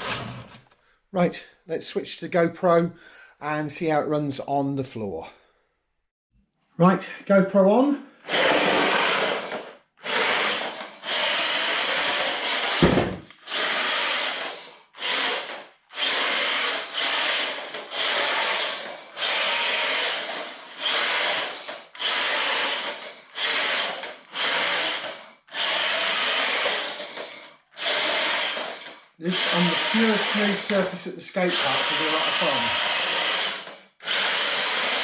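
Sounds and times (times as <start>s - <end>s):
tyres sliding on hard floor: 8.3s - 10.8s
electric motor whining: 10.1s - 35.0s.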